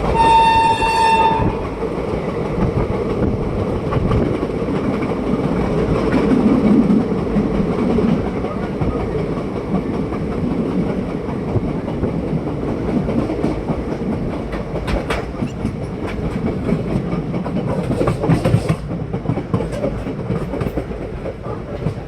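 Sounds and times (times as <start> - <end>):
train rumble: 0.0 - 22.0
train wheels clattering over rail joints: 0.0 - 22.0.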